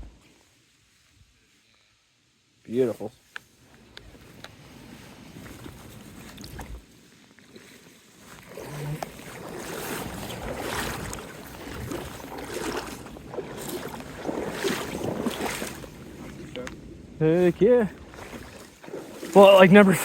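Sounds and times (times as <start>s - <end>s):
water splashing and sloshing: 4.0s - 20.0s
wind buffeting microphone: 8.6s - 20.0s.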